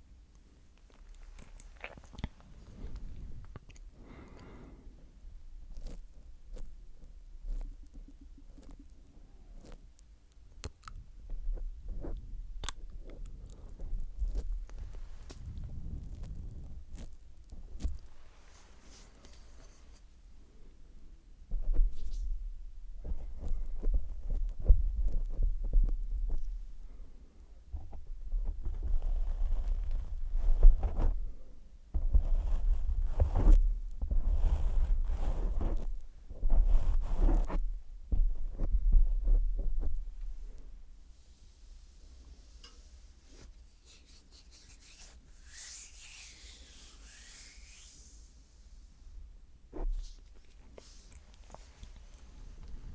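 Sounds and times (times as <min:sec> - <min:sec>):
tongue licking a microphone: 0:00.9 - 0:02.4
hissy rubbing on microphone: 0:32.0 - 0:40.5, 0:41.2 - 0:48.6.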